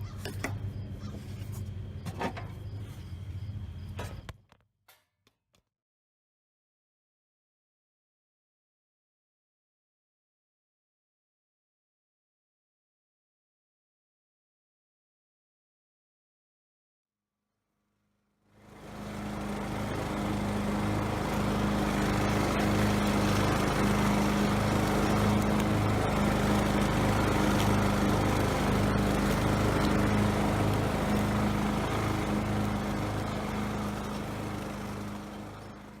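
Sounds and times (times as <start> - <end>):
lawn tractor engine running: 18.6 - 36.0.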